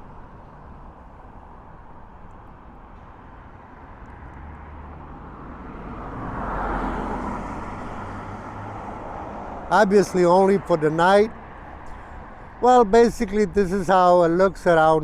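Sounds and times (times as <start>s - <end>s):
traffic rumble: 0.0s - 15.0s
vehicle passing: 3.9s - 15.0s.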